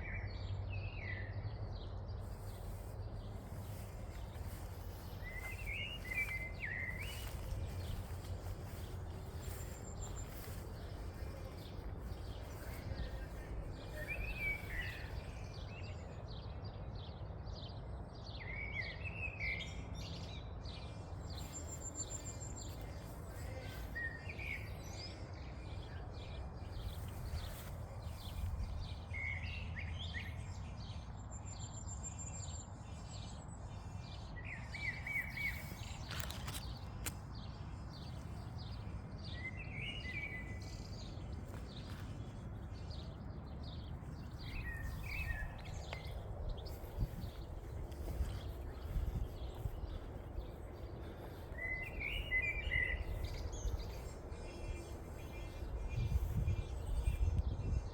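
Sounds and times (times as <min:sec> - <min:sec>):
steady low rumble: 0:01.6 - 0:16.1, 0:38.0 - 0:57.9.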